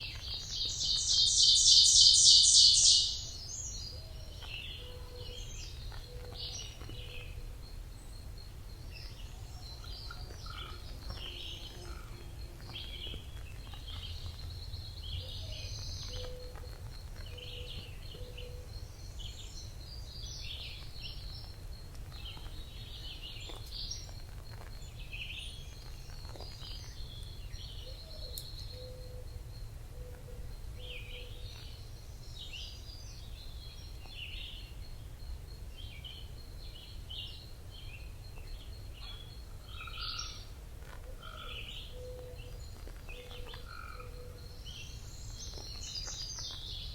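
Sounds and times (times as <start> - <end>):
birds chirping and calling: 0.0 - 21.5, 39.0 - 46.9.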